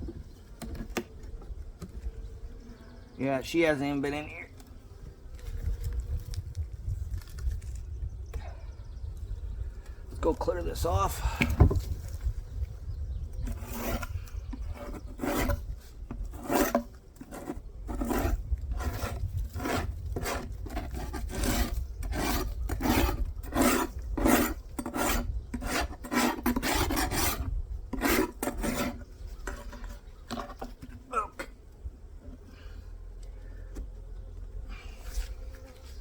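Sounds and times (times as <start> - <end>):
hive tool scraping wood: 13.4 - 36.0.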